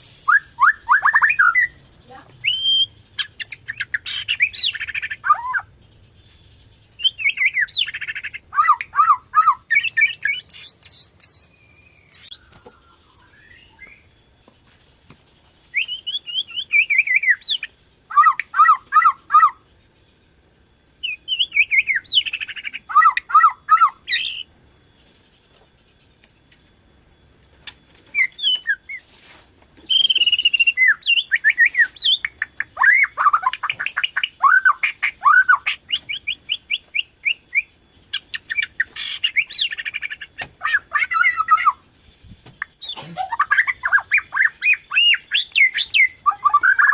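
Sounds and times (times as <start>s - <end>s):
songbird whistling: 0.0s - 1.8s, 2.4s - 5.7s, 6.9s - 14.2s, 15.7s - 19.6s, 21.0s - 24.5s, 28.1s - 29.1s, 29.8s - 41.8s, 42.6s - 46.9s.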